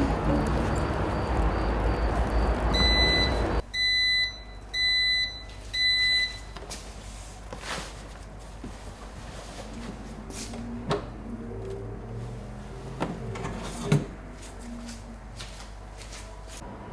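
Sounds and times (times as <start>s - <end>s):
high electronic beeps: 0.0s - 3.6s
loud steady rushing noise: 0.0s - 3.6s.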